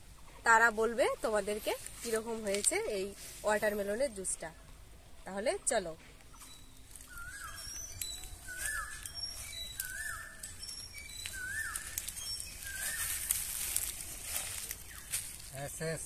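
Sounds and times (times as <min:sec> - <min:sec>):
bird calling: 0:06.2 - 0:16.0
high bird chirps: 0:06.3 - 0:15.5.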